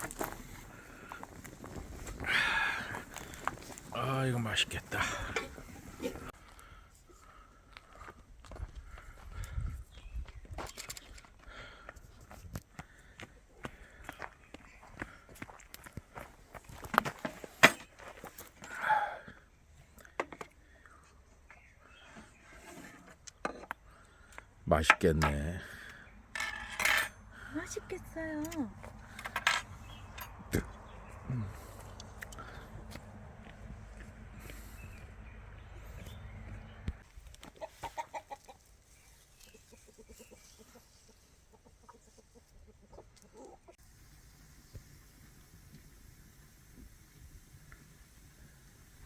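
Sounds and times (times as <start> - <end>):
chickens clucking: 34.8 - 43.8.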